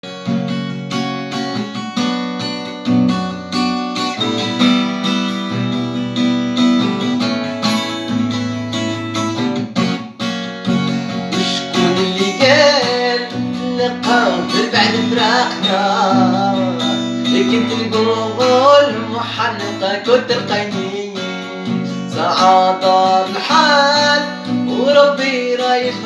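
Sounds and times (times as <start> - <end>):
acoustic guitar strumming: 0.0 - 26.0
person singing: 11.4 - 26.0.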